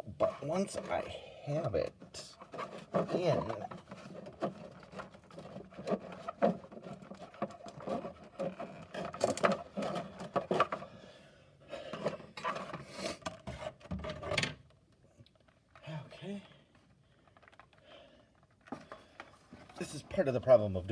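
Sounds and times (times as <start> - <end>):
cardboard rustling and scraping: 0.0 - 11.0, 11.9 - 14.4, 18.5 - 20.4.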